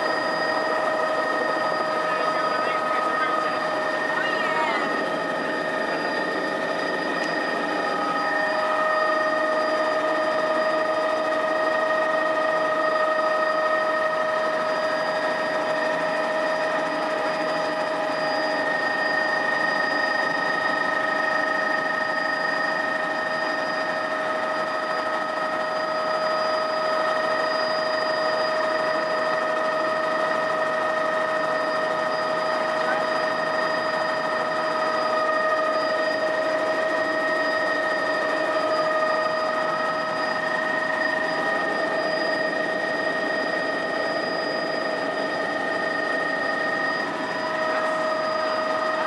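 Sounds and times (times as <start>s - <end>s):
high whining tones: 0.0s - 9.8s
helicopter running: 0.0s - 49.0s.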